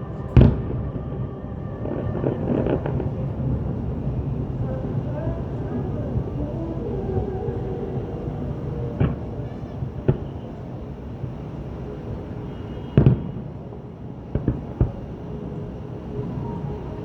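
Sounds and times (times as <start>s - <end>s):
steady background hum: 0.0s - 17.0s
fireworks booming: 1.8s - 13.6s, 14.3s - 15.2s.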